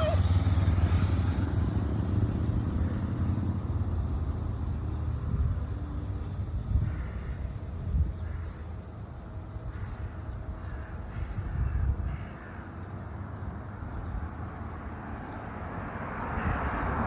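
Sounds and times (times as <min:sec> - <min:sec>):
birds calling: 0:00.0 - 0:01.4, 0:09.6 - 0:15.5.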